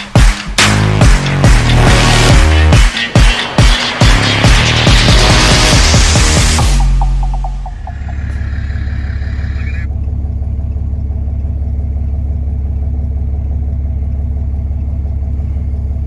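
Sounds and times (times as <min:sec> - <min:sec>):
engine running steadily: 0:07.5 - 0:16.0.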